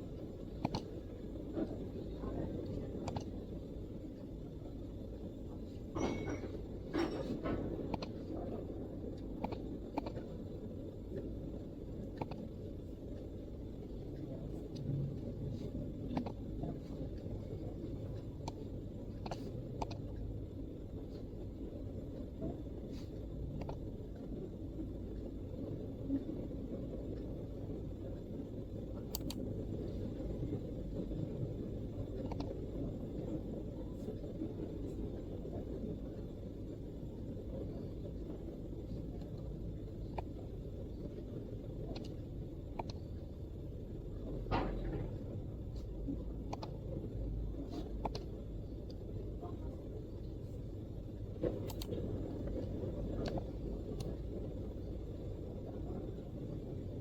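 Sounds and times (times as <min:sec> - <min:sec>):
low background rumble: 0:00.0 - 0:57.0
keyboard clicks: 0:29.1 - 0:29.4, 0:51.6 - 0:52.0
keyboard keystrokes: 0:29.1 - 0:29.4.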